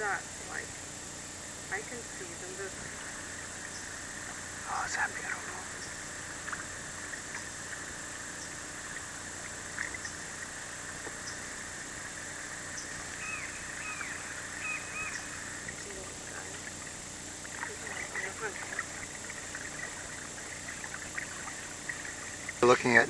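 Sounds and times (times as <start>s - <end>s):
faint outdoor hiss: 0.0s - 23.0s
soft high chirping calls: 12.7s - 16.0s.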